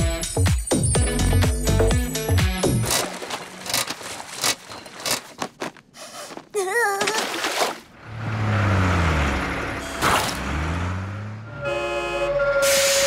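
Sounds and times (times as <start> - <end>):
scattered clicks and knocks: 2.8 - 5.8.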